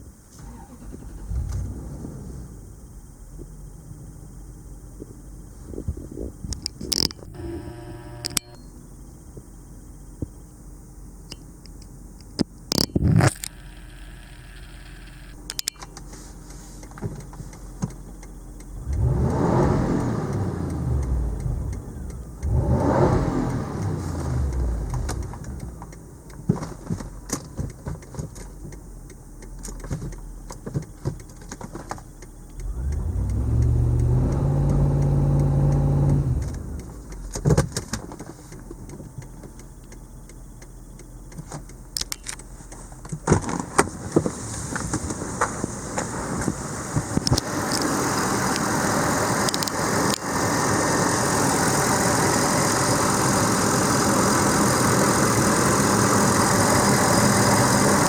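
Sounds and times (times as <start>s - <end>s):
car engine idling and revving: 0.0s - 58.0s
sharp clicks: 6.5s - 8.7s, 11.3s - 16.2s, 16.8s - 43.3s, 46.4s - 48.8s, 49.4s - 50.4s.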